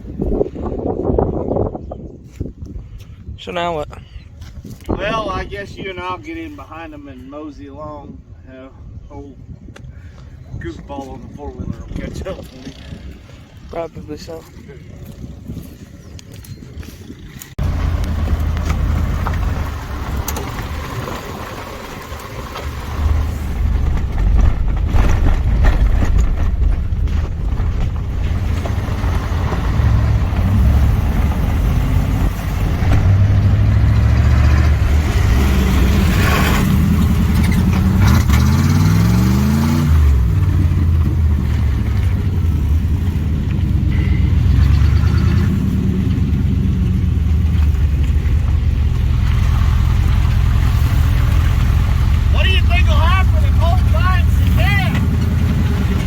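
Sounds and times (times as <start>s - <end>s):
vehicle engine driving slowly: 16.1s - 56.0s.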